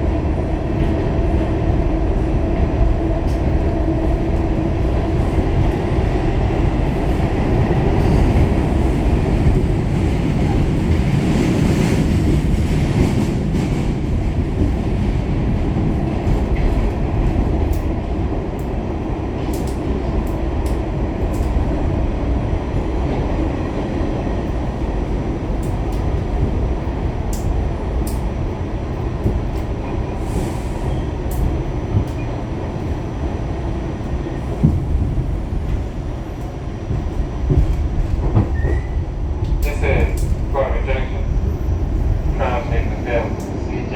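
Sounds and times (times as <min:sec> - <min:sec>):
subway car wheels rumbling on rail: 0:00.0 - 0:43.9.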